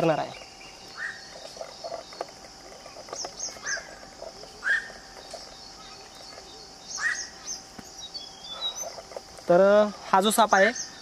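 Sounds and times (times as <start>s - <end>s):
steady high drone: 0.0s - 11.0s
bird call rising and falling: 0.3s - 9.1s
quick high bird chirps: 4.6s - 9.0s.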